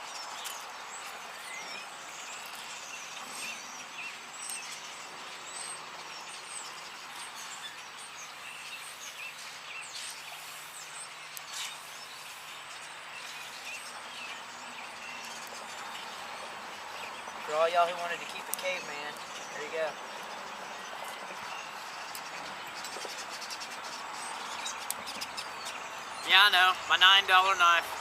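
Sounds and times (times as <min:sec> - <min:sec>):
songbirds chirping: 0:00.0 - 0:28.0
steady outdoor hiss: 0:00.0 - 0:28.0.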